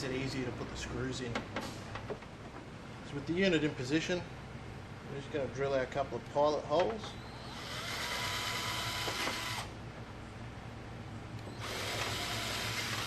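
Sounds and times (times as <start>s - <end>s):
power drill drilling into plastic: 7.4s - 9.7s, 11.5s - 13.0s.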